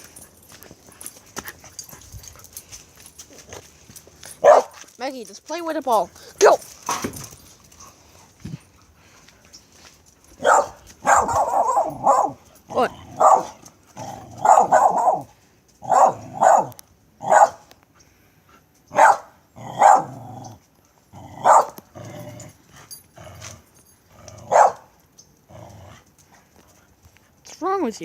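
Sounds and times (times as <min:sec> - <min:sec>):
dog barking: 0:04.4 - 0:04.8, 0:10.4 - 0:12.4, 0:13.2 - 0:13.6, 0:14.4 - 0:17.7, 0:18.9 - 0:20.2, 0:21.4 - 0:21.8, 0:24.5 - 0:24.9.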